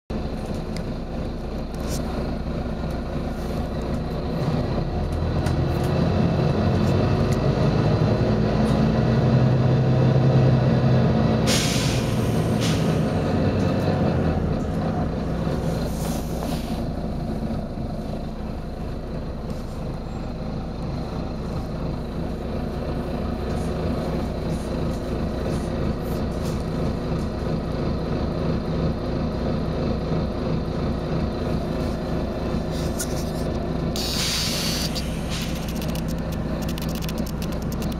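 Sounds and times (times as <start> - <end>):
bus diesel engine running: 0.1 - 37.9
compressed air hisses: 11.5 - 13.0, 34.0 - 35.6.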